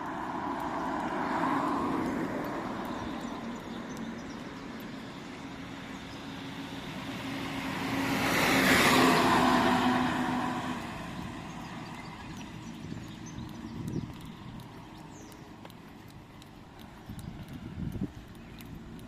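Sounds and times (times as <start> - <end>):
car passing by: 0.0 - 3.6, 5.8 - 13.8.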